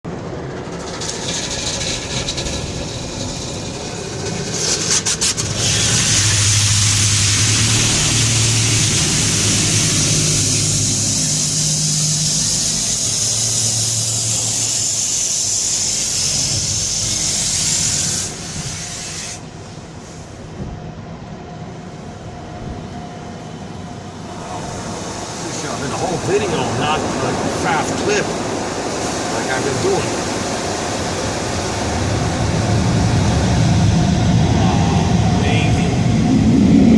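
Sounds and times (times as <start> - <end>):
low motor hum: 0.0 - 36.9
car wash rushing hiss: 0.1 - 36.9.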